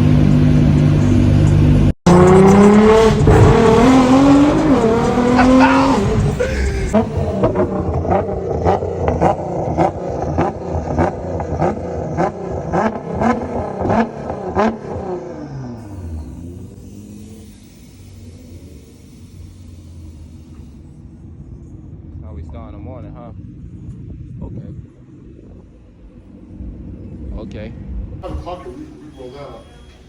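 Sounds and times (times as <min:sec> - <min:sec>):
car engine accelerating: 0:00.0 - 0:30.0
regular beat: 0:02.1 - 0:07.8.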